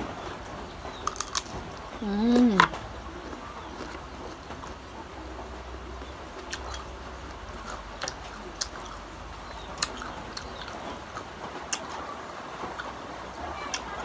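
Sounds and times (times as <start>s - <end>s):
crunchy biting and chewing: 0.0s - 13.0s.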